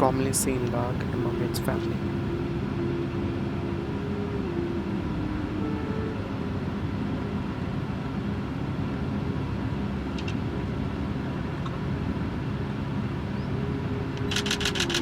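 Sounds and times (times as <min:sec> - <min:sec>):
vehicle engines rumbling: 0:00.0 - 0:02.5.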